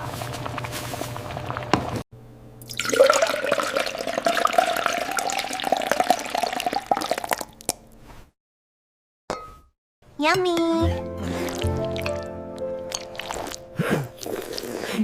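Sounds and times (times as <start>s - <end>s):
liquid pouring into container: 2.6s - 7.7s.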